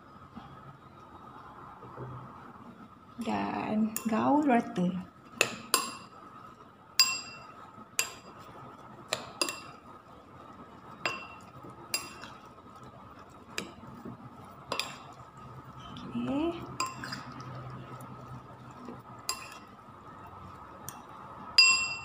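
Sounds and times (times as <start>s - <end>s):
spoon clinking against bowl: 5.4s - 6.1s, 7.0s - 8.4s, 9.1s - 9.8s, 11.0s - 12.4s, 14.7s - 15.1s, 16.8s - 17.4s, 19.3s - 19.7s, 21.6s - 22.0s.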